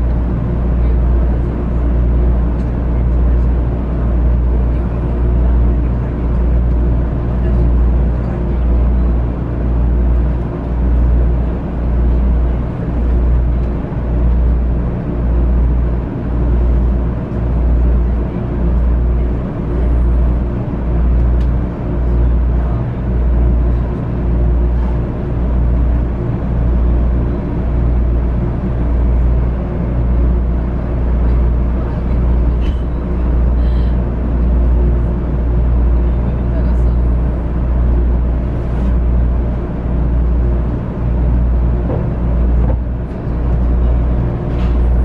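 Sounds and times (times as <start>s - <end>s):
pulsing train rumble: 0.0s - 45.0s.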